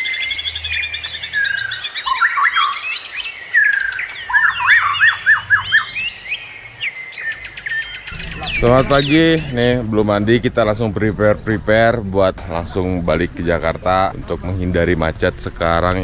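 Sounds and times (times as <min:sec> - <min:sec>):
birds singing and chirping: 0:00.0 - 0:16.0
thin steady high tone: 0:08.1 - 0:16.0.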